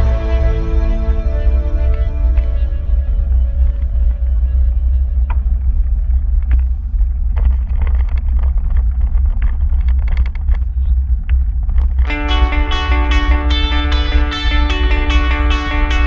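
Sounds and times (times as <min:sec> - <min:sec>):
wind and road noise rumble: 0:00.0 - 0:16.0
clicks and rattles: 0:06.4 - 0:12.2.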